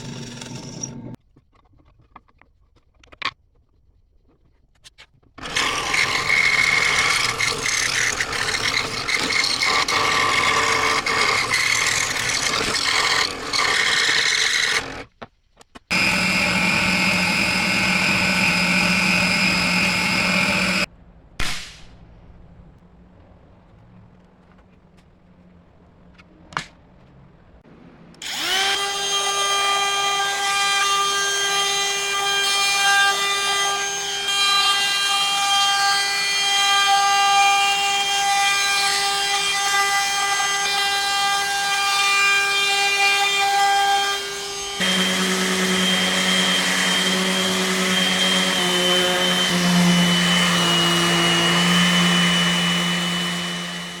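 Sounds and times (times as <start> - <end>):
electric power tool whining: 0.0 - 1.2, 5.4 - 15.1, 15.9 - 20.9, 28.2 - 54.0.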